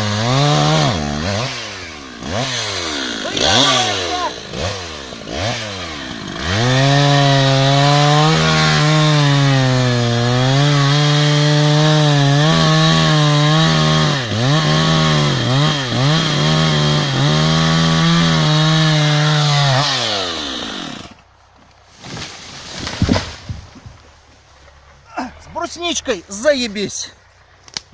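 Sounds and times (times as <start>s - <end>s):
chainsaw cutting into tree: 0.0s - 21.2s.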